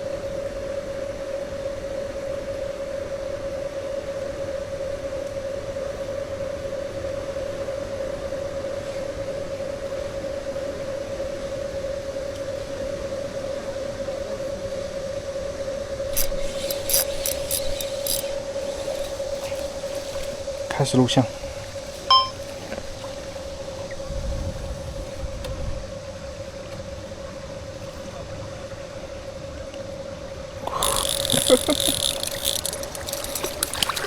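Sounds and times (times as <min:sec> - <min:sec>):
constant hiss: 0:16.1 - 0:25.4, 0:30.6 - 0:34.0
sharp clicks: 0:16.2 - 0:19.1, 0:30.7 - 0:34.0.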